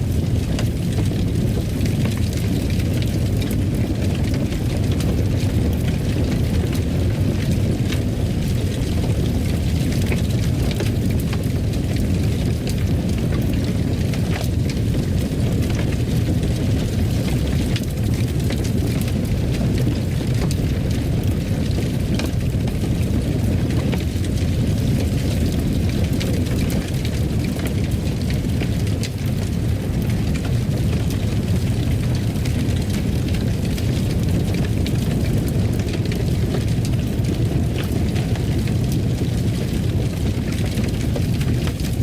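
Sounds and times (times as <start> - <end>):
faint fire crackles: 0.0 - 42.0
low rumble of fire: 0.0 - 42.0.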